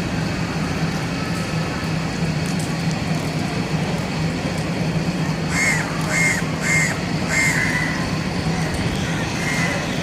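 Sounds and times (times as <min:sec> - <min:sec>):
steady low hum: 0:00.0 - 0:10.0
crow cawing: 0:05.5 - 0:08.0.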